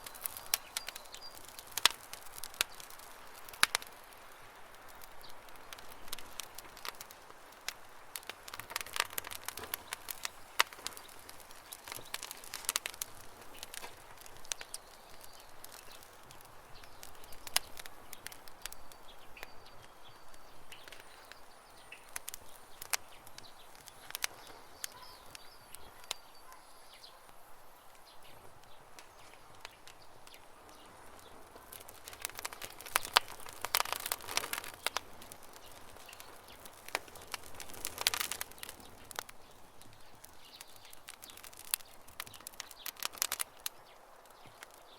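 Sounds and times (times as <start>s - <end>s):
campfire crackling and popping: 0.0s - 44.9s
small birds chirping: 0.0s - 44.9s.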